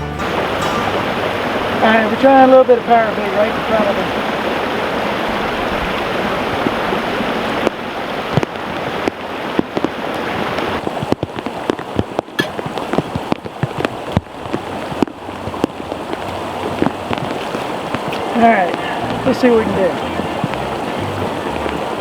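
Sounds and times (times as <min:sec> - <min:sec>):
raindrops ticking: 0:00.0 - 0:22.0
stream water rushing: 0:00.0 - 0:22.0.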